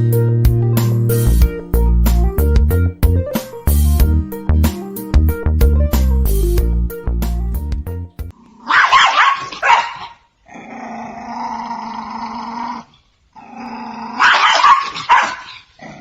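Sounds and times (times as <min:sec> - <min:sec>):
dog barking and howling: 0:08.6 - 0:10.2, 0:14.1 - 0:15.8.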